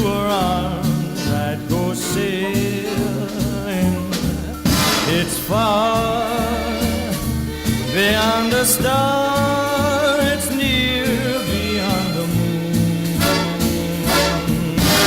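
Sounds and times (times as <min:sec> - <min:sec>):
song with bass and drum beat: 0:00.0 - 0:15.0
cymbal crash: 0:04.7 - 0:05.7.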